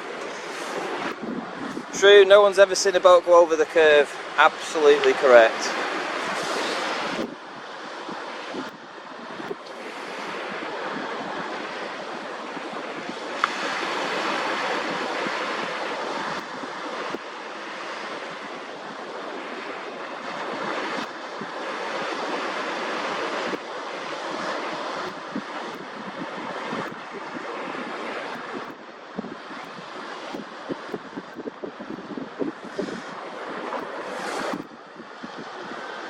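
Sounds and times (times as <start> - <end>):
sea waves washing ashore: 0.0 - 36.0
wind on microphone: 0.0 - 36.0.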